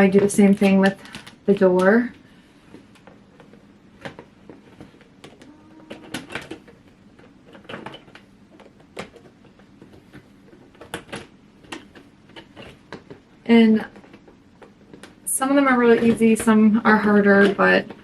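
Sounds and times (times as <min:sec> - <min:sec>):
plastic panels clacking and snapping: 0:02.7 - 0:15.2.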